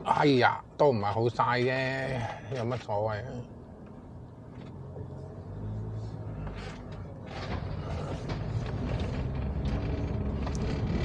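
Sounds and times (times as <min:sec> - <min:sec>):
car engine and tyres rumbling: 0:00.0 - 0:11.0
short creaks and clicks: 0:06.4 - 0:11.0.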